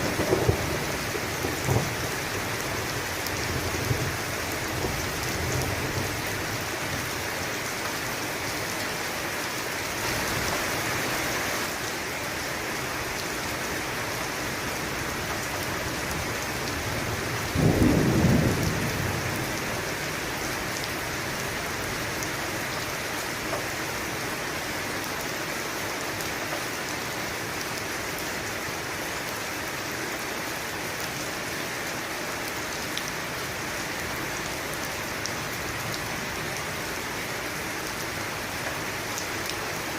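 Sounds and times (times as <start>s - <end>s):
thunder clap rumbling: 0.0s - 2.9s, 17.4s - 19.6s
heavy rain: 0.0s - 39.9s.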